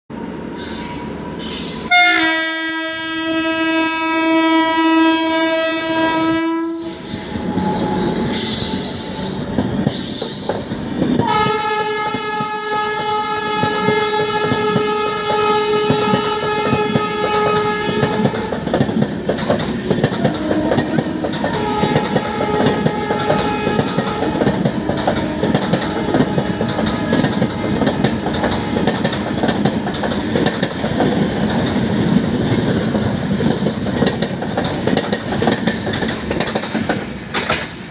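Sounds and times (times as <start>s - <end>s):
locomotive horn blasts: 1.9s - 9.3s, 11.2s - 18.5s, 20.3s - 29.0s.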